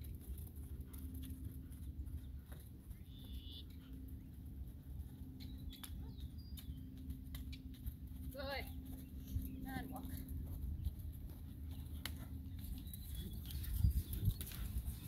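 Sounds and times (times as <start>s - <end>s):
steady low rumble: 0.0s - 15.0s
bird chirps: 2.9s - 3.8s, 5.4s - 7.7s, 11.7s - 14.7s.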